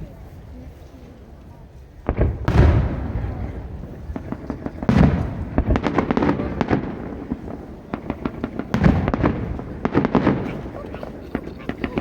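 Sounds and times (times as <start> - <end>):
firework shell booming: 2.1 - 10.9.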